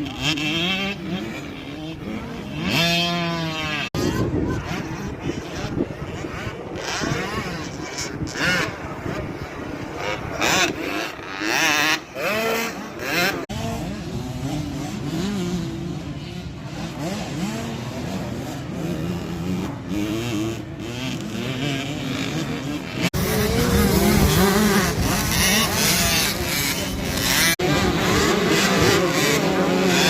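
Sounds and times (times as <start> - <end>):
motocross bike engines revving: 0.0 - 30.0.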